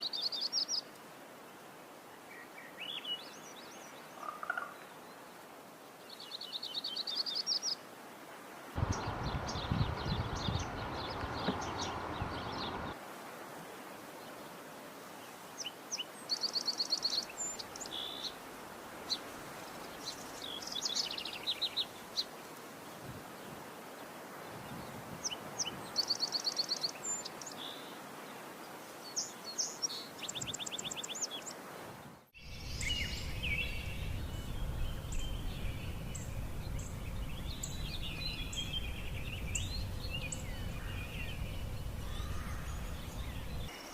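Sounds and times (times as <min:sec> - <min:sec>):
faint bird calls: 0:04.1 - 0:05.0, 0:32.4 - 0:43.9
warbler singing trilled phrases: 0:08.8 - 0:13.0, 0:32.4 - 0:43.9
noisy background: 0:32.6 - 0:43.7.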